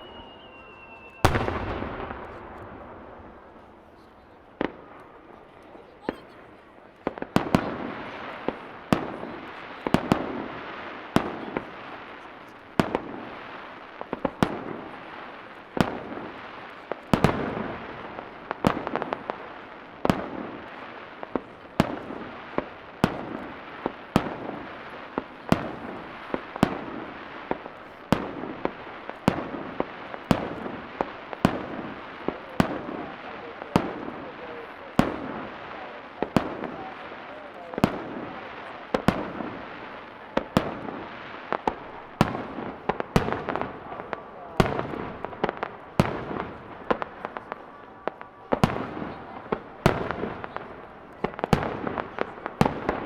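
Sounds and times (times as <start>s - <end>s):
crackling and rolling echoes: 0.0s - 53.0s.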